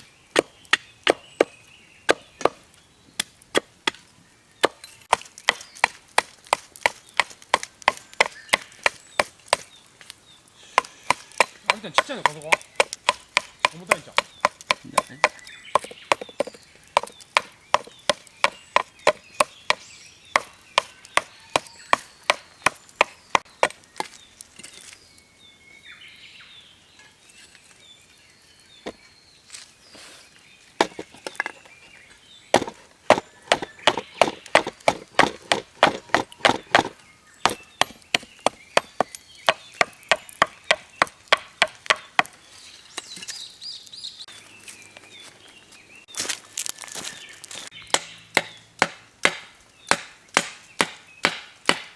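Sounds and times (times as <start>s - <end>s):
firewood being chopped: 0.0s - 25.0s, 30.7s - 43.4s, 46.2s - 51.9s.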